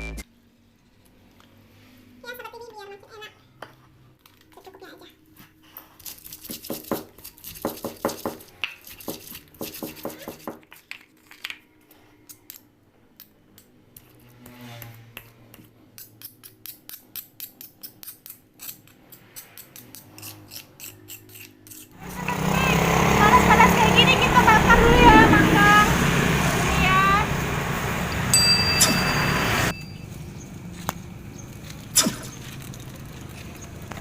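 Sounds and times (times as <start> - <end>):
tools clicking and scraping: 5.7 - 22.0
loud rushing noise: 23.4 - 28.4.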